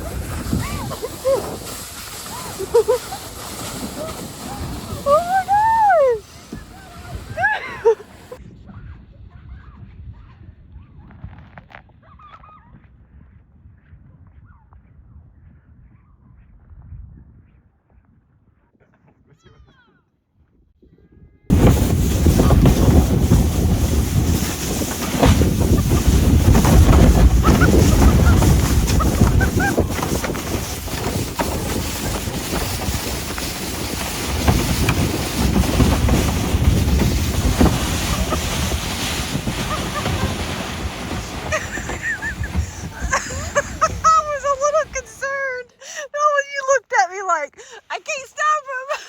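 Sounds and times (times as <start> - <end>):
kayak hull scraping over snow: 0.0 - 8.4, 21.5 - 45.6
wind over microphone: 0.0 - 19.4, 20.4 - 45.5.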